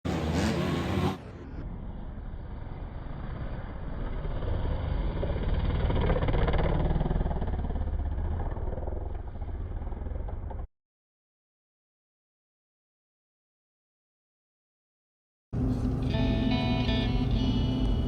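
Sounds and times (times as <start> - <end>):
motorcycle engine running: 1.7 - 10.7, 15.6 - 18.0.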